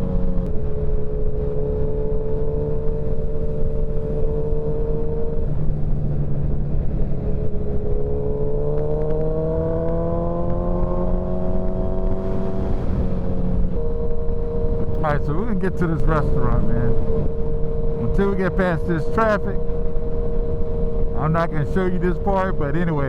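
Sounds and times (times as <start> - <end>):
wind rumble on microphone: 0.0 - 15.2, 16.4 - 18.1
motorcycle engine accelerating: 0.0 - 23.0.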